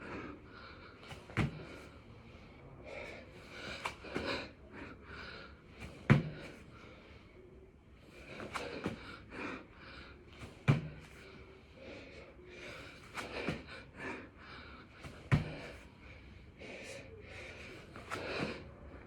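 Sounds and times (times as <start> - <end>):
man breathing hard: 0.0 - 19.0
body thudding on floor: 1.4 - 1.8, 6.1 - 6.5, 10.4 - 11.2, 15.1 - 15.7.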